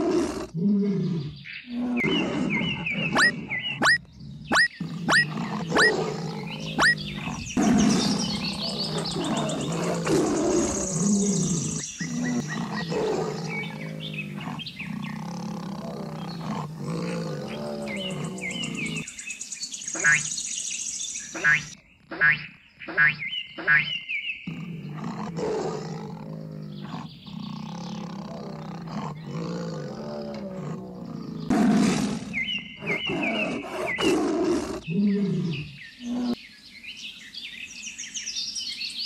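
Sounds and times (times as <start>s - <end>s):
tiger roaring and growling: 0.0s - 19.1s, 24.5s - 36.4s.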